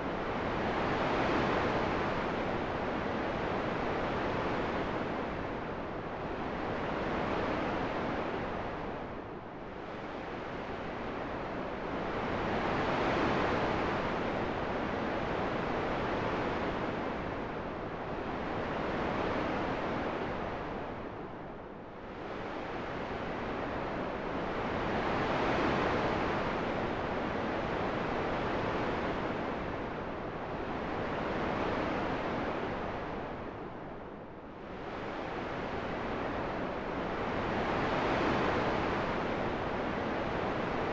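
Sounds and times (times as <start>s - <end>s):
rushing wind: 29.8s - 40.9s.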